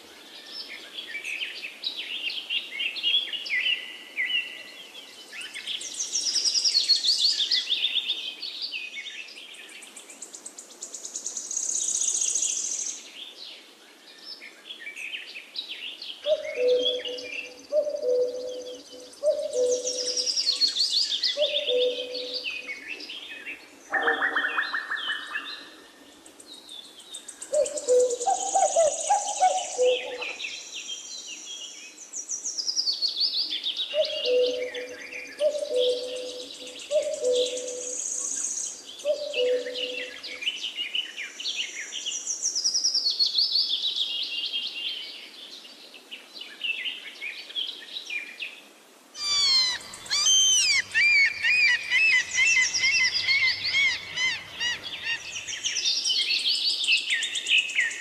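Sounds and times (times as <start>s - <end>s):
dense bird chorus: 0.0s - 48.6s, 49.2s - 58.0s
songbirds singing trills and whistles: 14.1s - 48.4s, 49.2s - 58.0s.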